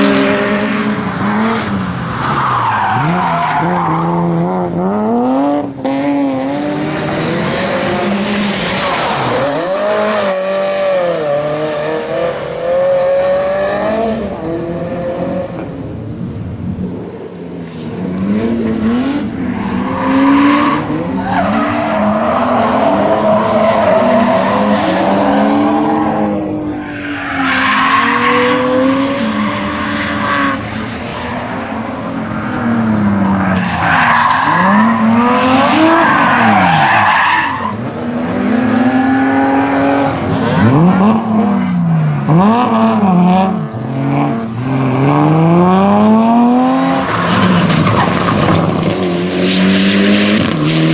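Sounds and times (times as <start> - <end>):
tyres squealing and skidding: 0.0 - 4.4, 7.0 - 10.6, 18.8 - 37.9, 46.5 - 50.9
rally car engine revving: 0.0 - 50.9.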